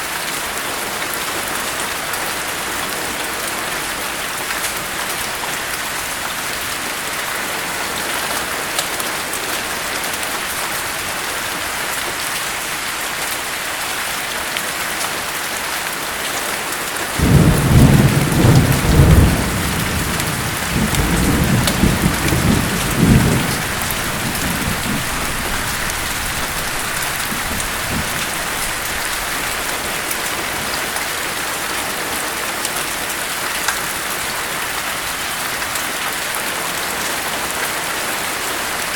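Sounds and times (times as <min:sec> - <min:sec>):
rain hiss: 0:00.4 - 0:38.9
thunder rumbling: 0:17.2 - 0:30.2.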